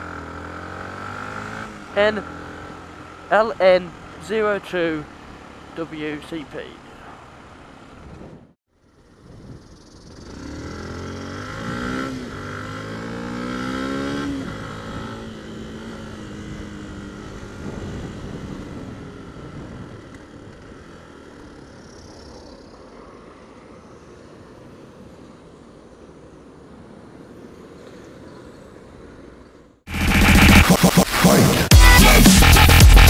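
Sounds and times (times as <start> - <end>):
motorcycle engine accelerating: 0.0 - 6.2, 8.9 - 22.7, 29.9 - 33.0
wind and road noise: 0.0 - 31.7.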